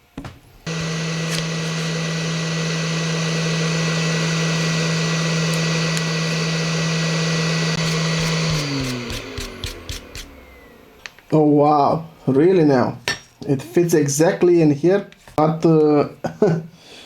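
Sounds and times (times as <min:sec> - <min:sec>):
small electric motor humming: 0:00.6 - 0:11.0.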